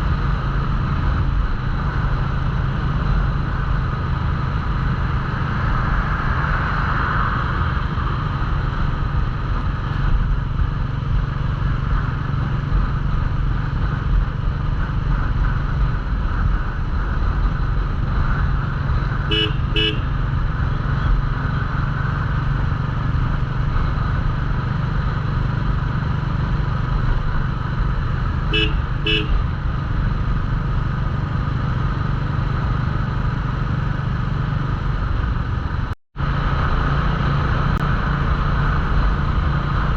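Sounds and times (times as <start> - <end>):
motorcycle engine running: 0.0 - 39.9
horn toots: 19.2 - 20.2, 28.5 - 29.6.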